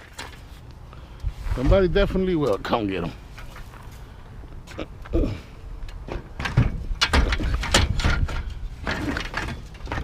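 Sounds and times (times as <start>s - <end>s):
metal bed rails clanking: 6.1s - 10.0s.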